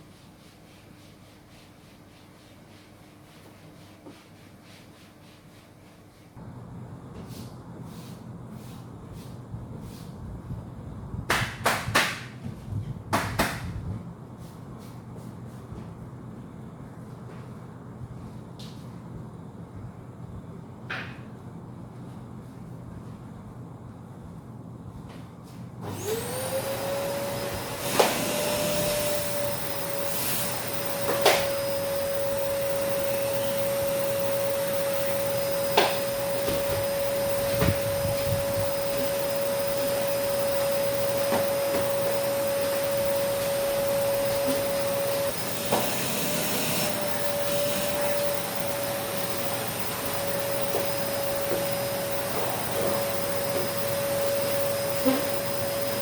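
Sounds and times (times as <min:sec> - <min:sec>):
vacuum cleaner motor whine: 0:25.8 - 0:56.0.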